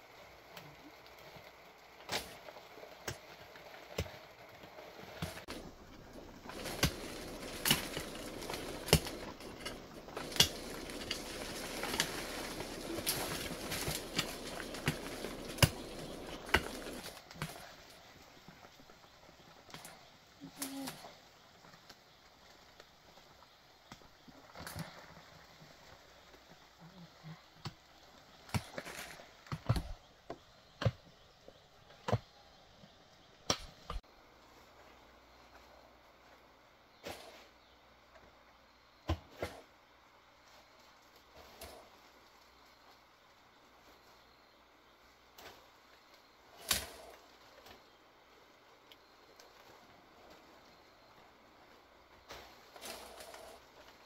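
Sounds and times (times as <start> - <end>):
steady rustle: 0.0 - 23.4, 39.3 - 54.0
sharp snaps and cracks: 6.4 - 17.8, 46.5 - 47.8.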